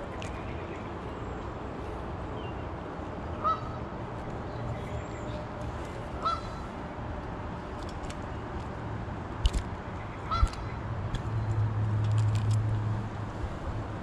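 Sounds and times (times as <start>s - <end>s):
steady outdoor noise: 0.0s - 14.0s
bird calling: 3.4s - 3.8s, 6.2s - 6.7s, 10.1s - 10.8s.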